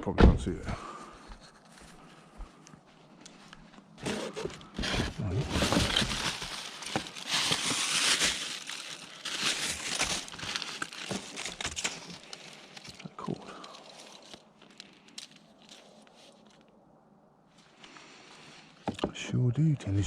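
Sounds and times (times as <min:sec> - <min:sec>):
junk rummaged through by hand: 0:04.0 - 0:15.8.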